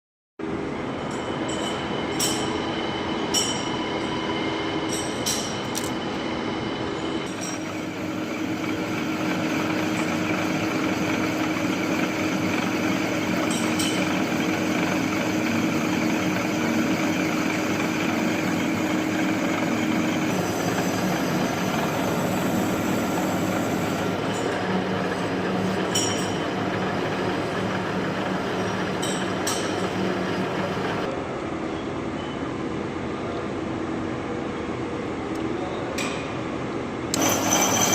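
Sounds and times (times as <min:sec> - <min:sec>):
lathe cutting metal: 0:07.2 - 0:31.1, 0:37.1 - 0:37.9.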